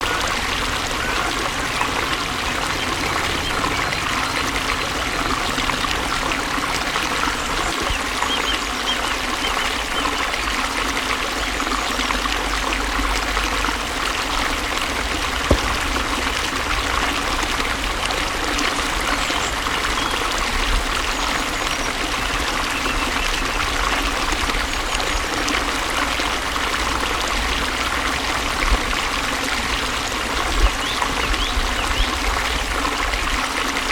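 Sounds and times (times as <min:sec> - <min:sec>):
water flowing: 0:00.0 - 0:33.9
low rumble: 0:15.5 - 0:17.2.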